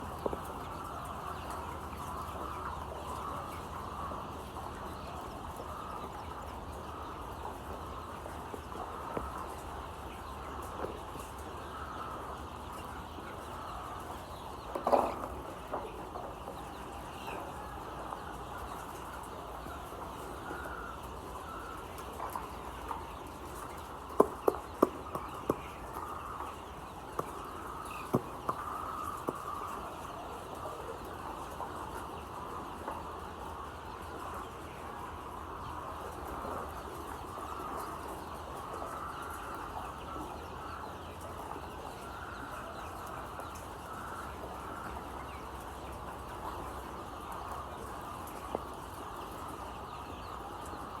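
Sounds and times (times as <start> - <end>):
chicks peeping: 0.0 - 51.0
sharp knocks: 28.1 - 28.6.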